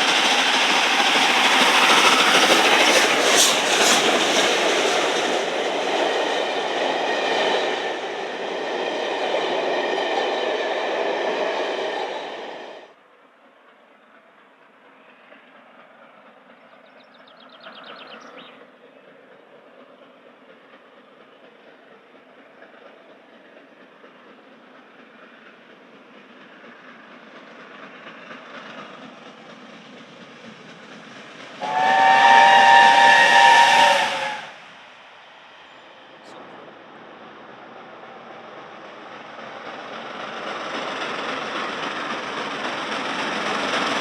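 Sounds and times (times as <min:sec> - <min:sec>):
steam train rumbling and hissing: 0:00.0 - 0:44.0
steam locomotive whistle: 0:31.6 - 0:34.7.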